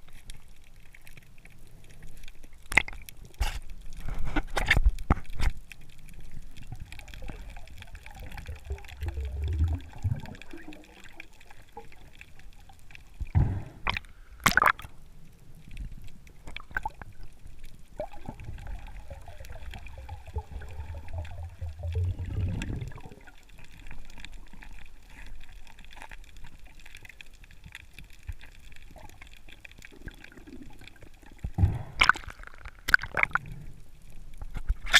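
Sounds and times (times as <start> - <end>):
water gurgling and sloshing: 0.0 - 34.9.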